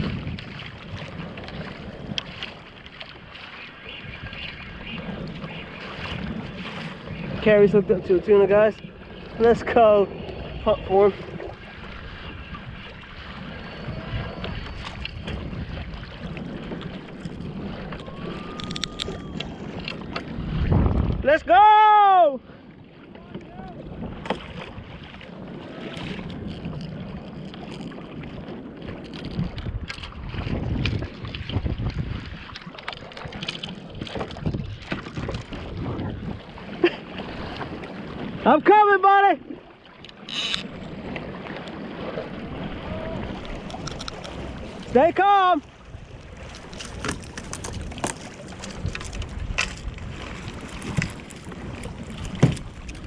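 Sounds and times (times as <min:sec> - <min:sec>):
water washing against kayak hull: 0:00.0 - 0:53.0
wind buffeting microphone: 0:00.0 - 0:53.0
knocks on kayak: 0:52.3 - 0:52.7.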